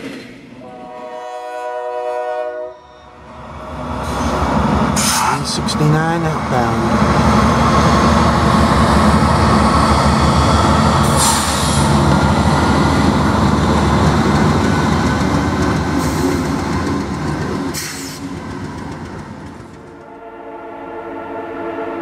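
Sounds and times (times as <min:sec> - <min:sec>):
freight cars rumbling and clattering: 0:03.8 - 0:20.0.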